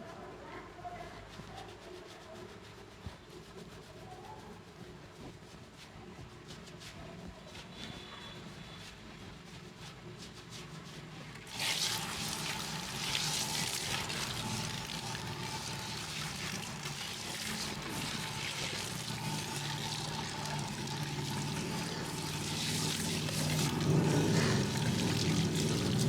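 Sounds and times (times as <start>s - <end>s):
water running from a tap: 11.3s - 26.0s.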